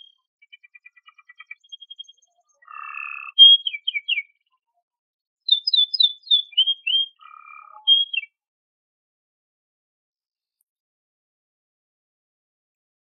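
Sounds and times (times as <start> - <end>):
canary singing: 0.0 - 4.4, 5.5 - 8.4.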